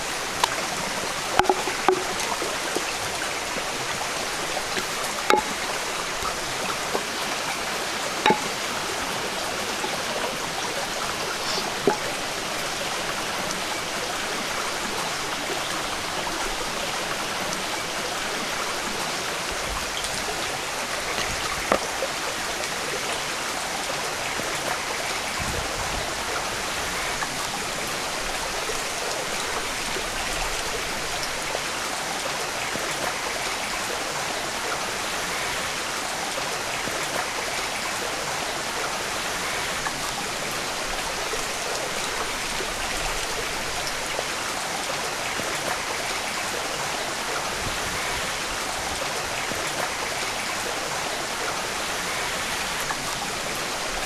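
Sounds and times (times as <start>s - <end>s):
stream water rushing: 0.0s - 54.0s
sharp clicks or knocks: 1.4s - 2.9s, 4.7s - 7.1s.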